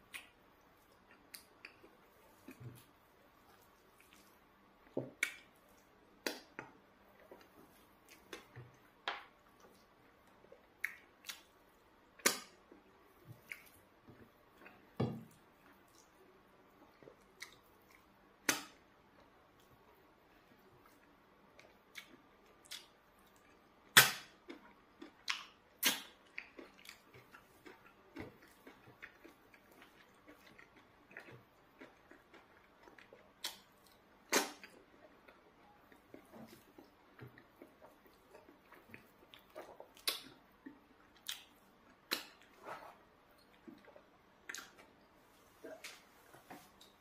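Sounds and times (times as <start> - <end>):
wet chewing and lip smacks: 3.4 - 8.6, 9.4 - 11.6, 16.8 - 18.1, 20.8 - 42.6, 43.3 - 45.1.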